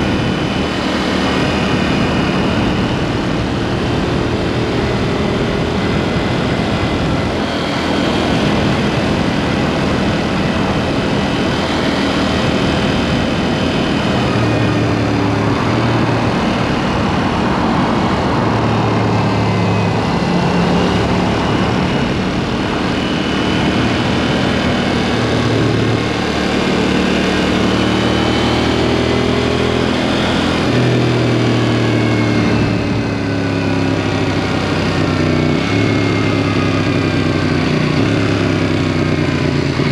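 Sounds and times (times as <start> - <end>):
rushing noise: 0.0 - 31.5
motorcycle engine riding: 0.0 - 39.9.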